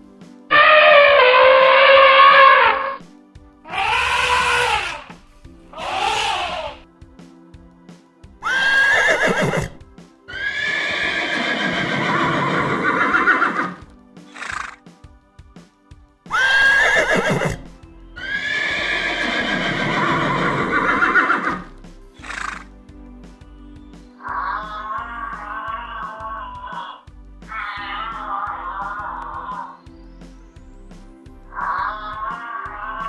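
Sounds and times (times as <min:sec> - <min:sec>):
soft background music: 0:00.0 - 0:33.0
horse whinnying: 0:03.7 - 0:05.2, 0:05.8 - 0:06.8, 0:08.4 - 0:13.8, 0:16.3 - 0:17.6, 0:18.2 - 0:22.6, 0:26.5 - 0:28.6.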